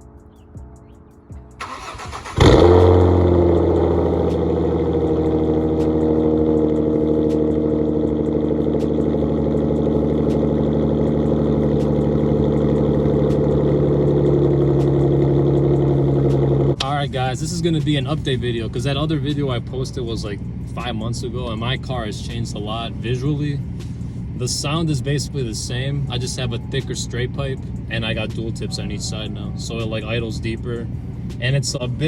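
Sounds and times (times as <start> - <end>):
car engine cranking and starting: 1.6 - 16.9
car engine idling: 1.6 - 32.0.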